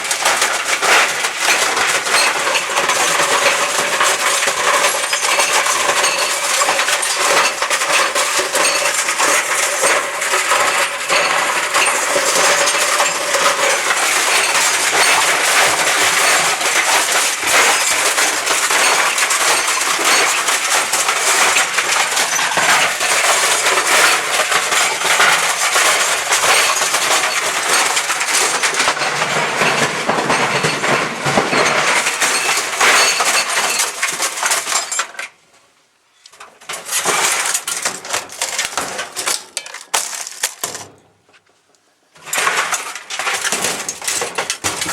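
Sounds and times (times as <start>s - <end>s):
laptop clattering in clothes dryer: 0.0s - 34.8s, 42.2s - 44.9s.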